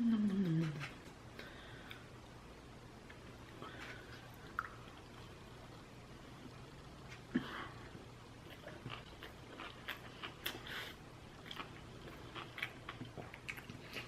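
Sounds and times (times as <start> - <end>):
person chewing: 8.4 - 14.0.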